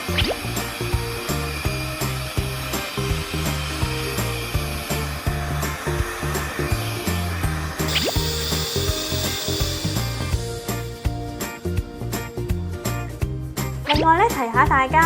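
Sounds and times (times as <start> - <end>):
robot suction fan running: 0.4 - 11.4
background music with steady beat: 7.9 - 15.0.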